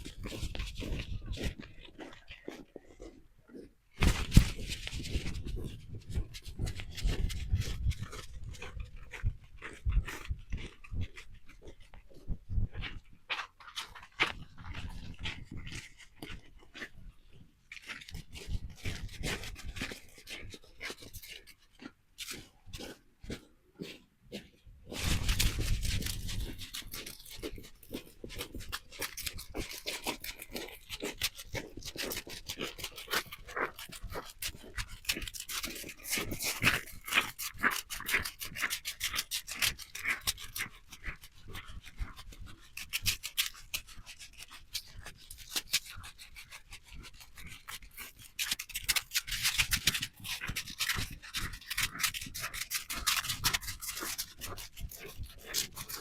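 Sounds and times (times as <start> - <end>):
footsteps crunching on snow: 0.0 - 42.8.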